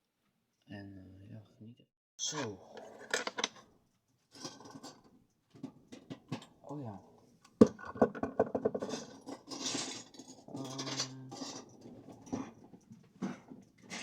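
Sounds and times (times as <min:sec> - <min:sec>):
lego bricks clattering: 0:02.9 - 0:03.6, 0:07.6 - 0:12.6.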